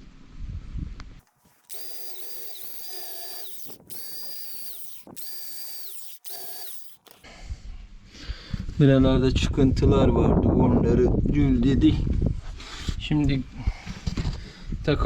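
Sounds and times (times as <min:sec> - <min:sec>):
electric drill whining: 0:01.4 - 0:07.3.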